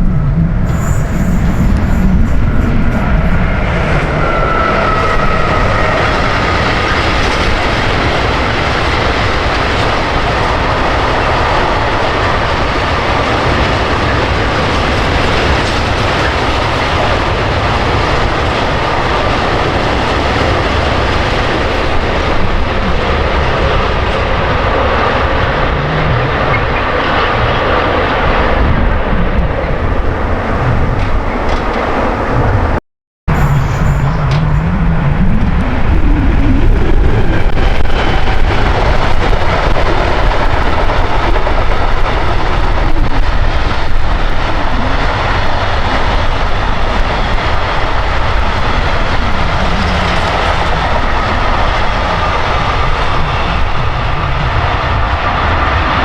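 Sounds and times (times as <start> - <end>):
faint high whine: 0.0 - 7.7, 33.3 - 37.3
train wheels rolling on rails: 0.0 - 56.0.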